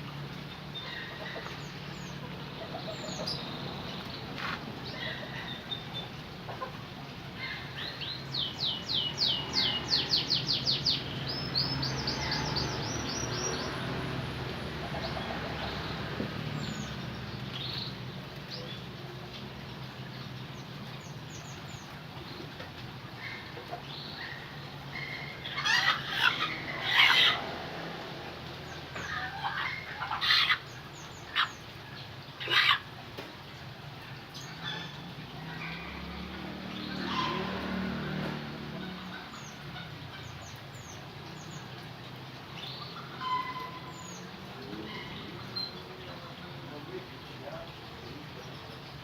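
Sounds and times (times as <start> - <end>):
canary singing: 24.0 - 27.5.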